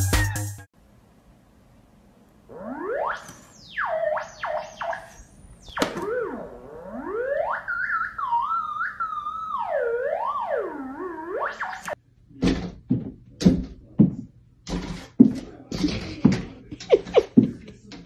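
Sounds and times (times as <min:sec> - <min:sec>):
theremin tone gliding: 0:02.5 - 0:12.0.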